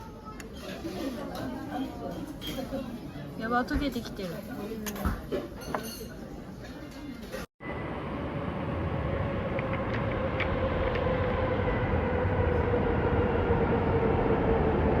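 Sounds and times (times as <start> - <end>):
vehicle rumble with humming tone: 7.6 - 15.0.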